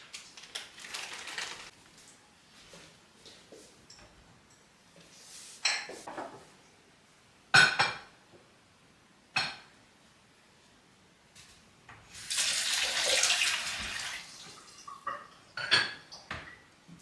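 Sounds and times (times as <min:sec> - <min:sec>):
dishes clinking: 0:14.9 - 0:16.6.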